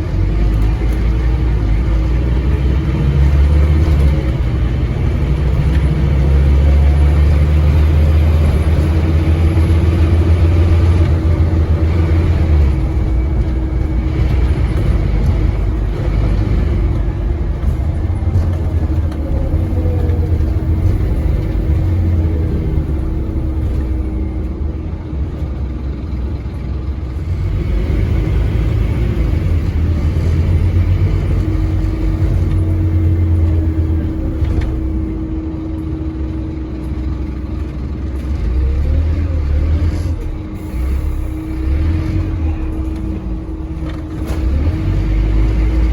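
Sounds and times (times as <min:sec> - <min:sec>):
diesel bus engine pulling hard: 0:00.0 - 0:45.9.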